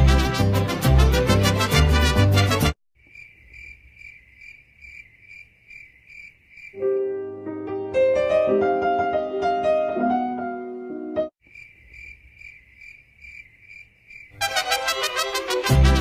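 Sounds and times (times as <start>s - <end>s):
cricket chirping: 3.0s - 6.9s, 11.4s - 14.6s
piano-like keyboard notes: 6.8s - 11.3s.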